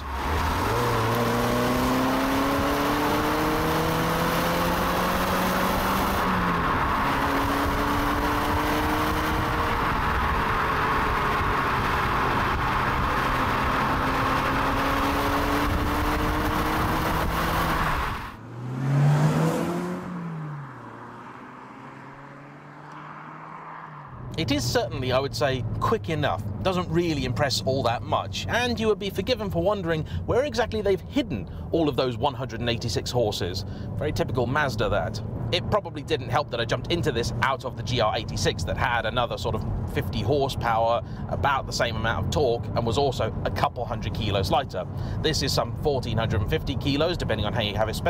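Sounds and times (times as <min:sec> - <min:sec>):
car engine accelerating: 0:00.0 - 0:29.8.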